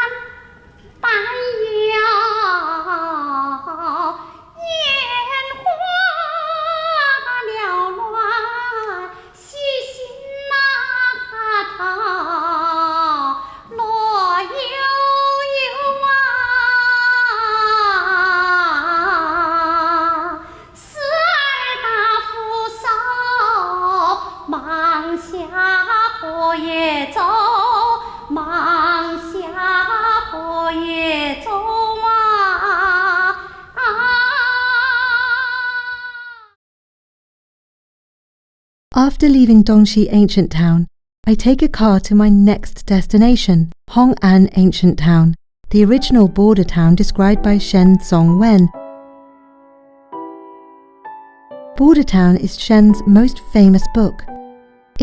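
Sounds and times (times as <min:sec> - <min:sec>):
high voice singing opera: 0:00.0 - 0:36.6.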